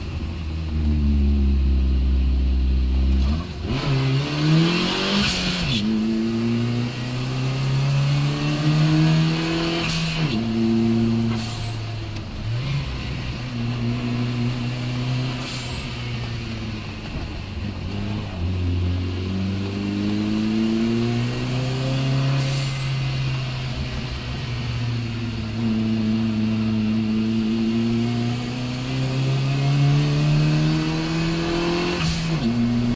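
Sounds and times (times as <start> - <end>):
race car engine revving: 0.0 - 32.9
hiss at gear shifts: 11.1 - 12.3, 15.3 - 16.2.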